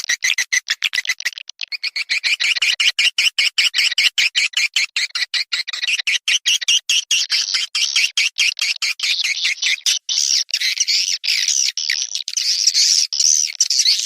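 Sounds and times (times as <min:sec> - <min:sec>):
swiftlets twittering chirps: 0:08.9 - 0:14.0.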